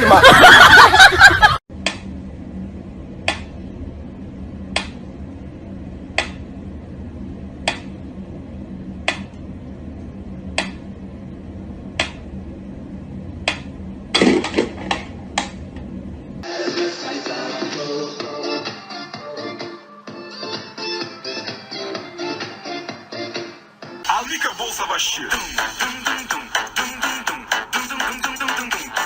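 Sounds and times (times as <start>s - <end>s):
low hum: 0.0s - 16.5s.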